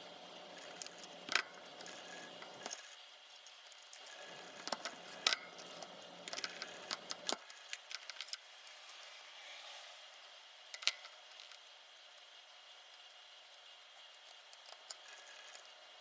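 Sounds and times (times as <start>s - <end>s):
small tools clicking: 0.6s - 9.1s.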